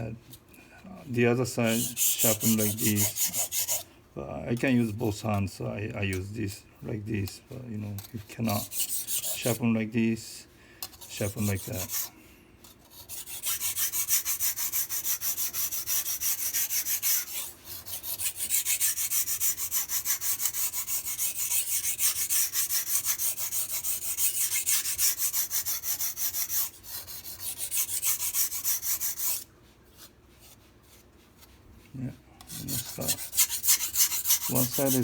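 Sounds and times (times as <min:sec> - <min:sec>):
knife scraping on sharpening stone: 0:01.7 - 0:03.9, 0:08.0 - 0:09.6, 0:10.8 - 0:12.1, 0:12.9 - 0:29.4, 0:32.4 - 0:35.0.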